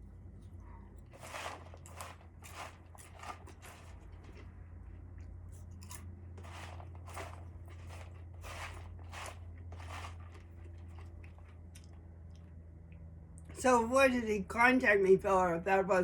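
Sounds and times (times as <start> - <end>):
steady low hum: 0.0 - 16.0
crunching or rustling: 1.0 - 4.6, 5.5 - 12.0.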